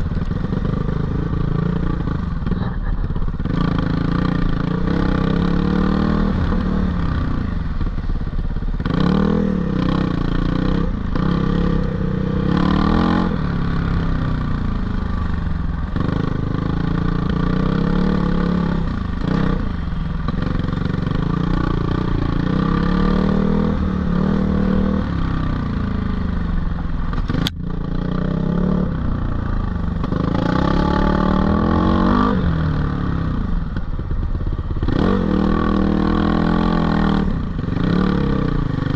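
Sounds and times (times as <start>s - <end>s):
dirt bike engine revving: 8.8s - 13.8s, 20.4s - 25.8s, 30.0s - 33.4s.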